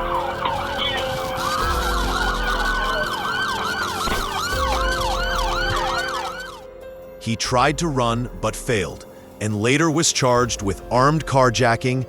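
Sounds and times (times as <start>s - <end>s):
police sirens wailing and yelping: 0.0s - 6.6s.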